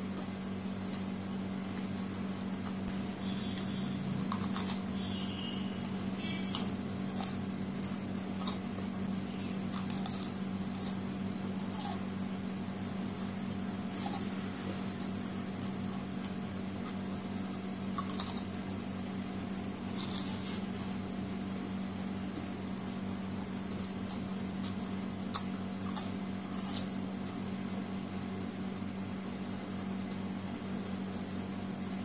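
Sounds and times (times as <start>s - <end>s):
food crunching while chewing: 3.4s - 5.1s, 5.9s - 12.1s, 13.2s - 14.4s, 17.9s - 18.9s, 19.9s - 21.0s, 24.0s - 27.5s.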